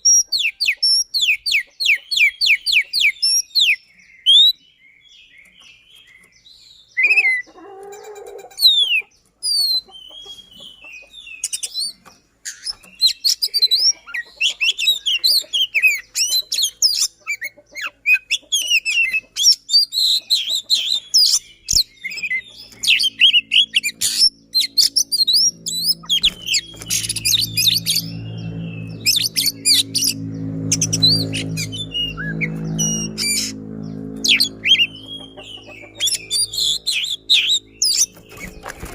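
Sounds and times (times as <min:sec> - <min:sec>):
bird singing rapid chirps and trills: 0:00.0 - 0:38.9
low steady hum: 0:22.4 - 0:38.9.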